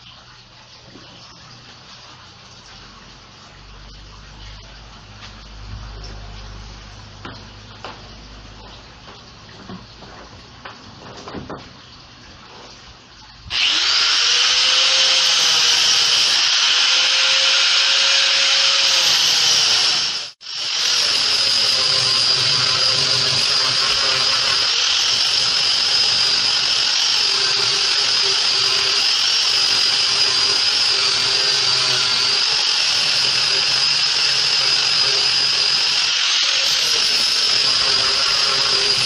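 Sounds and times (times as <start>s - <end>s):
electric sander whining: 13.5s - 39.0s.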